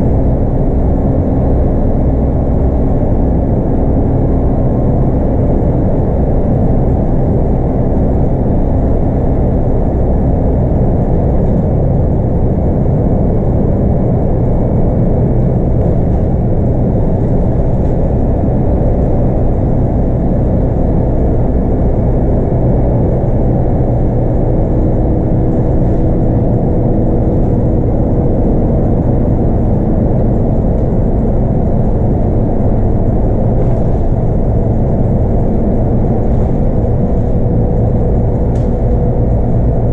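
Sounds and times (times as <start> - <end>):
bus diesel engine running: 0.0 - 39.9
road and tyre noise: 0.0 - 39.9.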